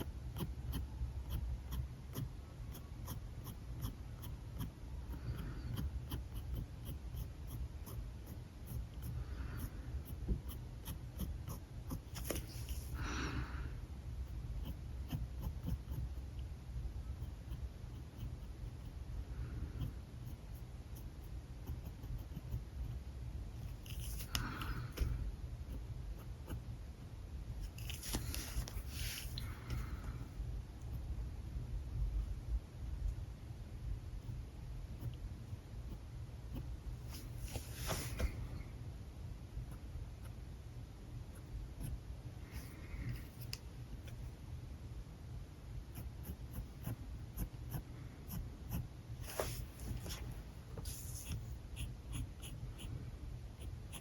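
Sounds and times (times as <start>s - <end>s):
marker scratching on paper: 0.0s - 12.9s, 14.5s - 16.4s, 23.6s - 26.6s, 27.6s - 29.4s, 45.9s - 53.0s, 53.6s - 54.0s
low steady hum: 0.0s - 54.0s.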